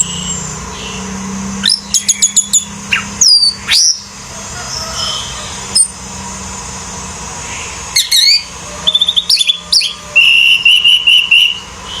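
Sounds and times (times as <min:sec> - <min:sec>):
bird chirps: 0:00.0 - 0:04.1, 0:07.4 - 0:12.0
bird trill: 0:00.0 - 0:06.0, 0:07.4 - 0:12.0
bird whistled notes: 0:07.6 - 0:12.0.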